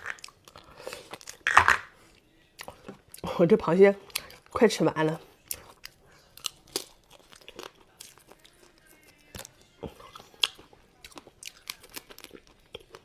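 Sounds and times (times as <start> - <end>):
soft chewing: 0.0 - 13.0
crab shell cracking: 1.2 - 1.9.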